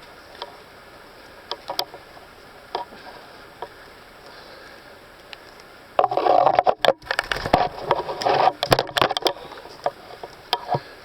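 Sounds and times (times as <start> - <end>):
leaves and twigs crackling: 7.0 - 8.6.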